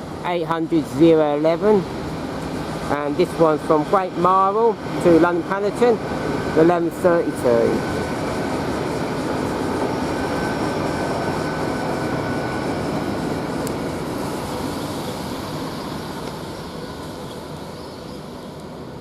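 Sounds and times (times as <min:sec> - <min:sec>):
train rumbling into station: 0:00.0 - 0:19.0.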